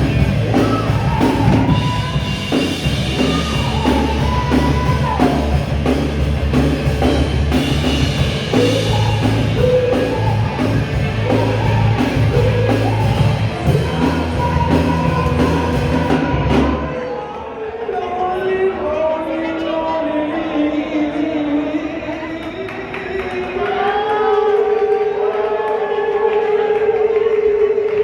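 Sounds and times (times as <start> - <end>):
drum kit beat: 0.0 - 16.8
rock and roll band playing: 0.0 - 16.9.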